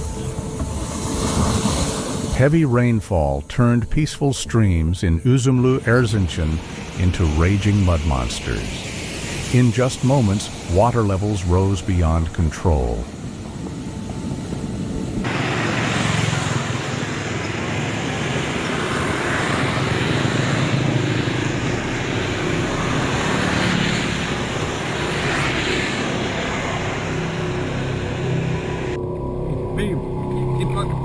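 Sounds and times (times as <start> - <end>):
floodwater rushing down a stream: 5.7 - 14.6, 15.2 - 28.4.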